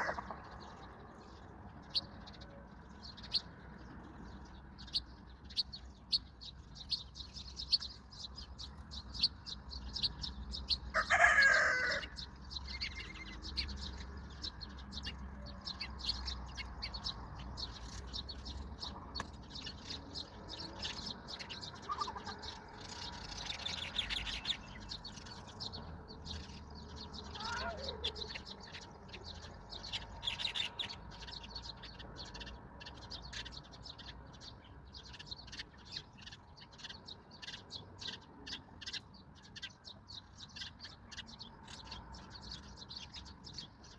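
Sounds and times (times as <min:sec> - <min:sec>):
chicken call: 0:00.0 - 0:00.2, 0:11.0 - 0:12.2
small birds chirping: 0:00.0 - 0:43.9.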